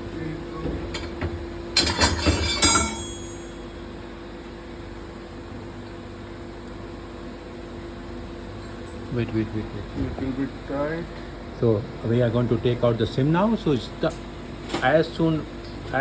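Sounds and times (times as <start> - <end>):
engine-room machinery hum: 0.0 - 16.0
metal tools clinking and clattering: 1.8 - 3.4.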